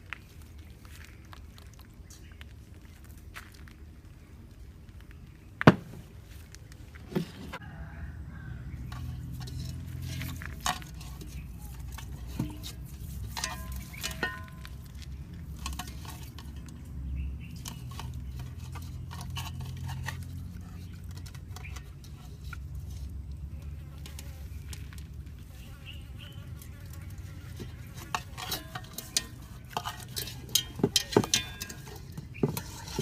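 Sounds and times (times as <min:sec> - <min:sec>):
metal clinking against crockery: 0:08.8 - 0:14.8, 0:27.6 - 0:33.0.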